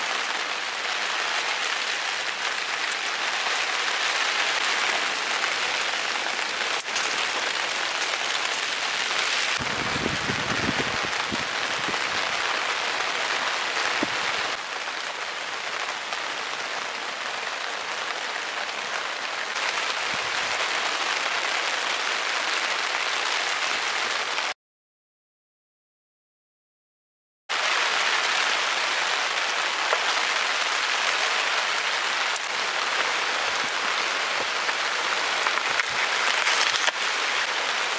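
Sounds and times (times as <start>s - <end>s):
heavy rain falling: 0.0s - 24.6s, 27.5s - 37.9s.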